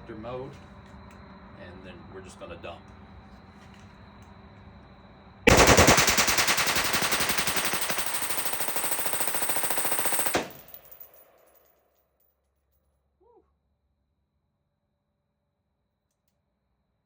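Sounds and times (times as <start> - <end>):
rifle firing rapid shots: 5.5 - 11.1.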